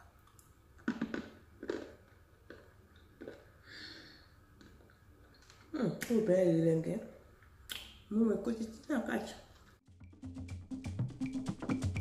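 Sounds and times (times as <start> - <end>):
crunchy bites and chewing: 0.8 - 3.4.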